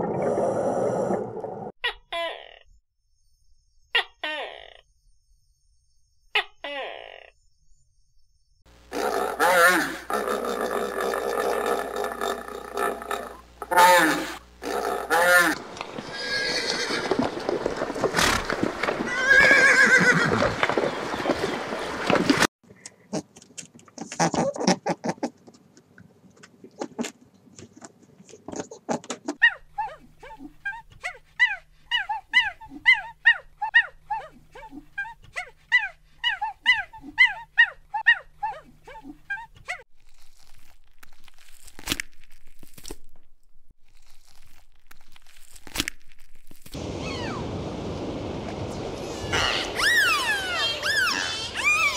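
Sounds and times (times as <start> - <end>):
horses whinnying: 13.7 - 21.5, 49.1 - 51.9
deer tearing and chewing grass: 39.9 - 43.2, 43.8 - 46.8
monkeys squeaky calls: 47.0 - 47.4, 49.1 - 51.9.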